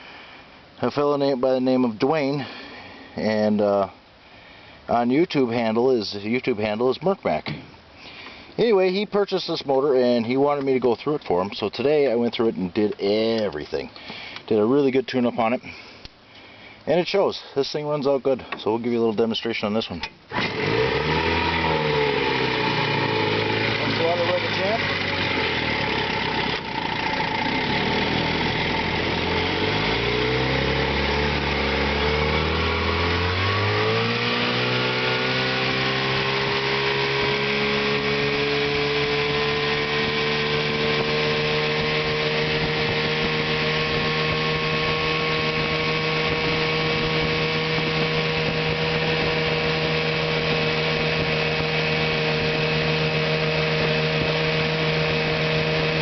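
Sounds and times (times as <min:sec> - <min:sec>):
outboard motor running: 0:20.3 - 0:56.0.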